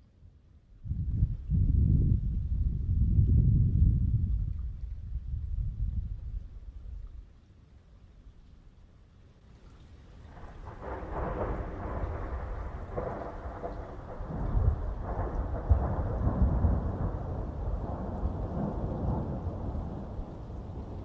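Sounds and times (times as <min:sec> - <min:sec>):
rolling thunder: 0:10.3 - 0:21.0.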